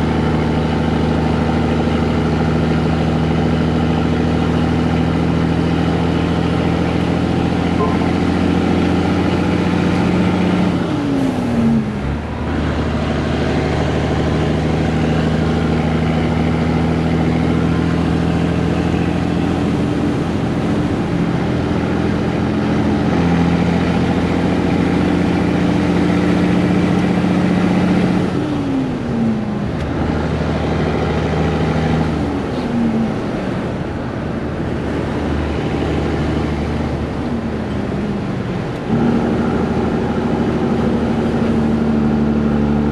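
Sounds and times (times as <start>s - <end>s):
truck diesel engine running: 0.0s - 42.9s.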